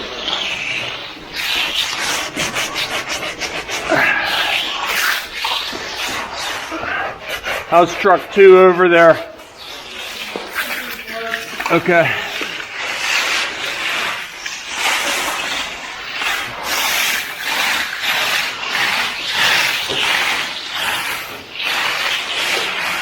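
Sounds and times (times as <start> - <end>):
trowel scraping wet concrete: 0.0 - 23.0.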